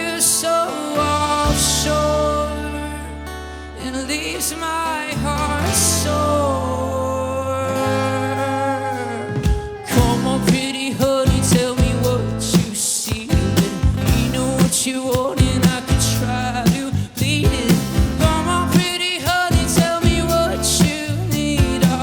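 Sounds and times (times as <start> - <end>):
live band music: 8.4 - 16.9.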